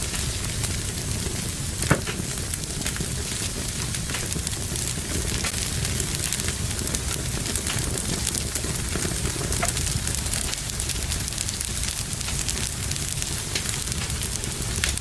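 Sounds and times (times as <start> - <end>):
fire crackling: 0.0 - 15.0
fire popping: 0.0 - 15.0.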